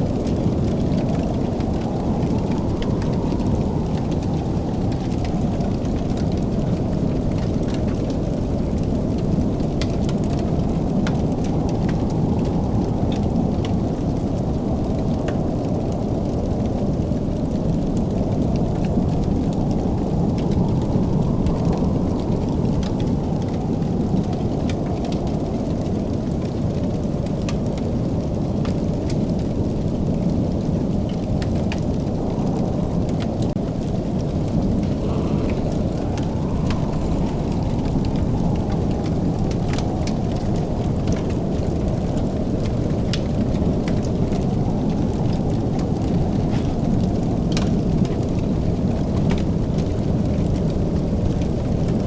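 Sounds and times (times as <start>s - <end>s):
fire crackling: 0.0s - 51.8s
fire pops and snaps: 34.8s - 48.4s.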